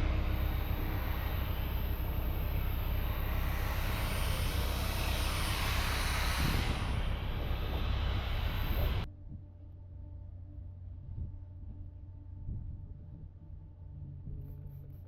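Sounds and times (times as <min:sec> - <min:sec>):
diesel truck engine droning: 0:00.0 - 0:09.1.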